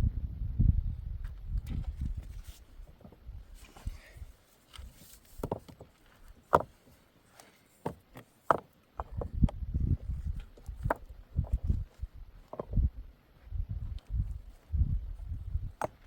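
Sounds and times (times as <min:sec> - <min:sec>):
sharp knocks and thuds: 0:05.4 - 0:05.9, 0:06.5 - 0:06.8.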